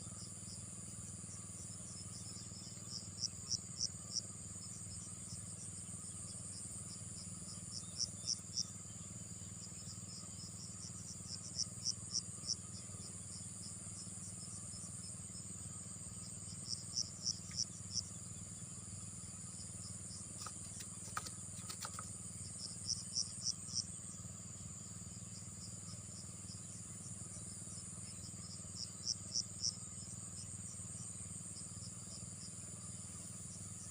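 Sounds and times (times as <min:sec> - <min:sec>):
crickets trilling: 0:00.0 - 0:33.9
loud insect chirps: 0:00.0 - 0:33.9
faint clicks: 0:20.4 - 0:22.1.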